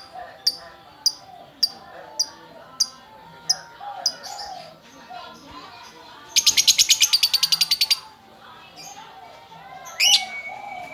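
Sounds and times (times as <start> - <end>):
lovebird chirping: 0.0 - 4.5.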